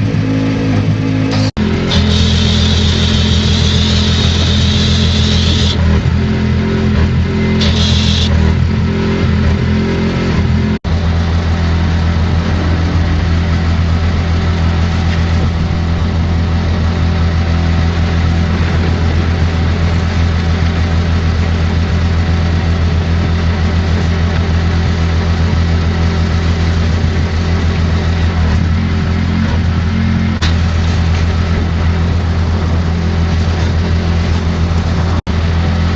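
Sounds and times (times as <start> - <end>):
pressure washer engine running: 1.3 - 9.4
high-pressure water spray hiss: 1.9 - 5.8, 7.6 - 8.3.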